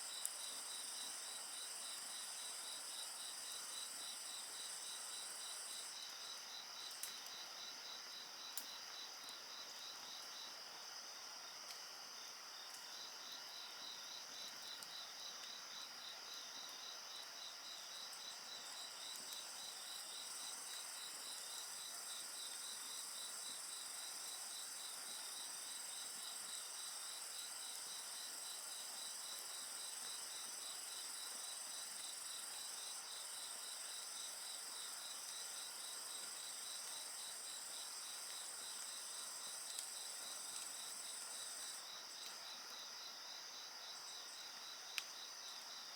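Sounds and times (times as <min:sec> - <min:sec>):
crickets chirping: 0:00.0 - 0:45.9.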